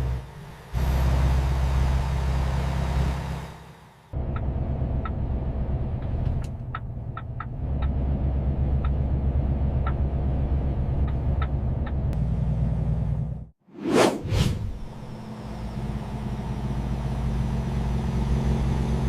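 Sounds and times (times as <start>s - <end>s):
truck engine droning: 0.0s - 13.5s, 14.7s - 19.0s.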